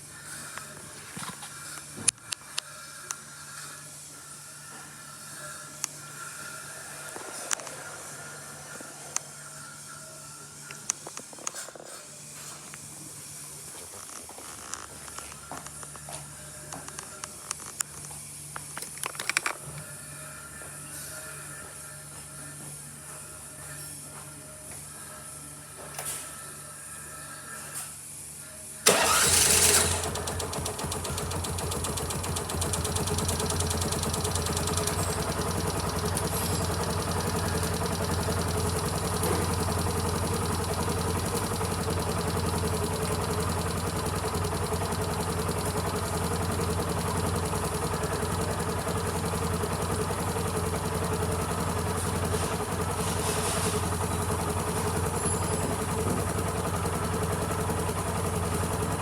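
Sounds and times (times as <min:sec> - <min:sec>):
scooter engine starting and idling: 0:28.8 - 0:59.0.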